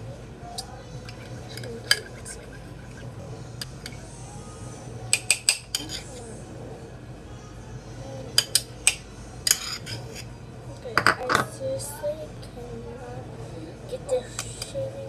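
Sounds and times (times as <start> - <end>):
utensil clinking against a bowl: 0.6 - 4.1, 5.2 - 6.2, 8.4 - 10.3.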